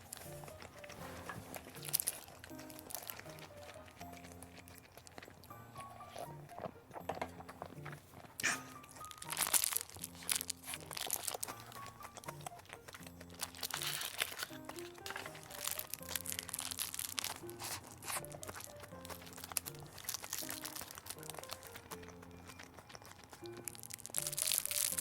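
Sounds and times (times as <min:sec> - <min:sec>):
background music: 0:00.0 - 0:25.0
crunching while eating: 0:00.0 - 0:25.0.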